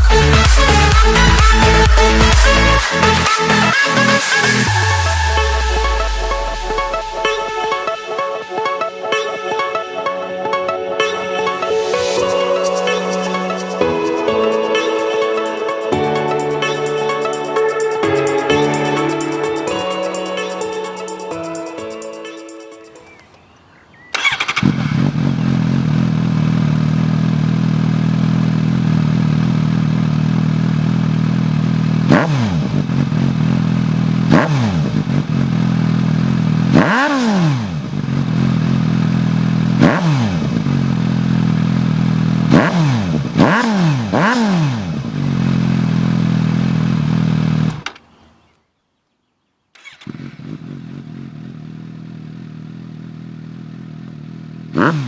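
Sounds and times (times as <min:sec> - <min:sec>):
motorcycle engine idling and revving: 0:00.0 - 0:09.7, 0:22.9 - 0:48.6, 0:49.8 - 0:55.0.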